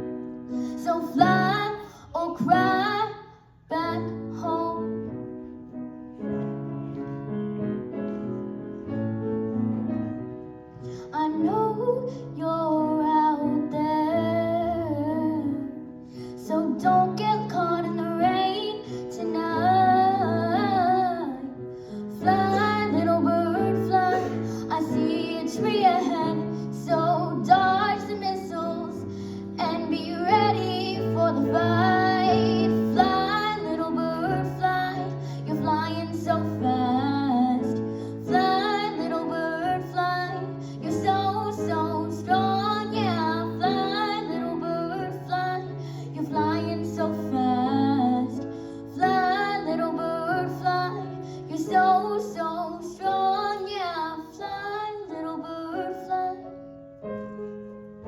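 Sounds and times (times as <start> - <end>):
piano accompaniment: 0.0 - 58.0
woman singing slow song: 22.2 - 56.5.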